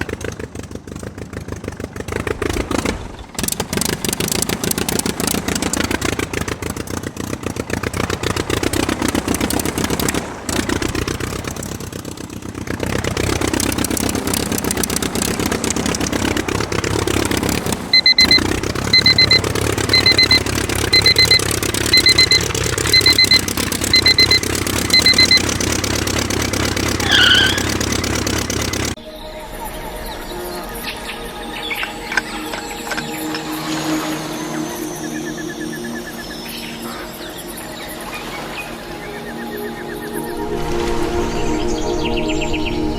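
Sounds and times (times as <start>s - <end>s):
miniature diesel engine running: 0.0s - 29.0s
high electronic beeps: 17.9s - 25.4s, 27.0s - 27.7s
short falling squeak: 27.0s - 27.9s.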